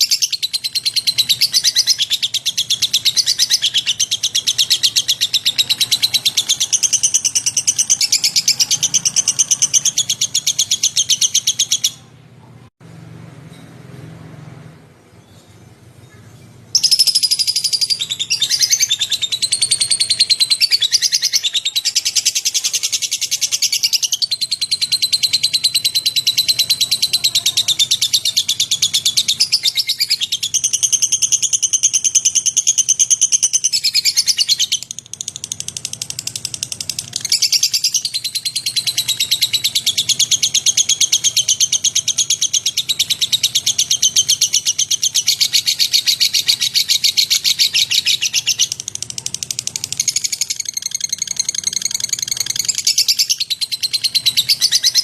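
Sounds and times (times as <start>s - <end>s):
lovebird twittering: 0.0s - 12.1s, 16.0s - 55.0s.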